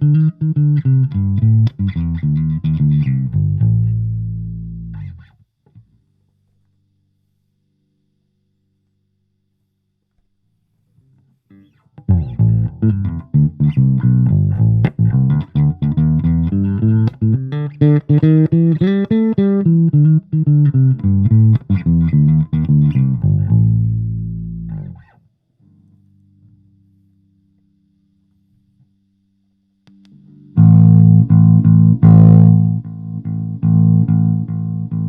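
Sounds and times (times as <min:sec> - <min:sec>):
electric bass guitar plucked notes: 0:00.0 - 0:05.3, 0:11.6 - 0:25.1, 0:29.9 - 0:35.0.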